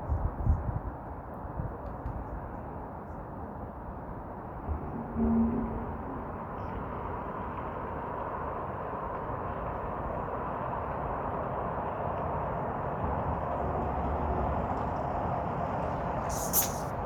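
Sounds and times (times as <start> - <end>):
distant road traffic: 3.9 - 17.0
short low tone: 4.8 - 6.7.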